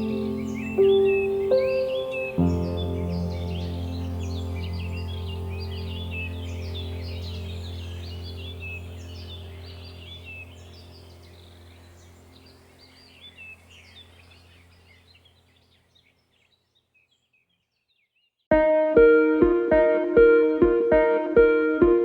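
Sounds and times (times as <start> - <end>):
birds chirping: 0.0 - 18.5
steady low hum: 2.7 - 15.5
plucked guitar tune: 18.5 - 22.0.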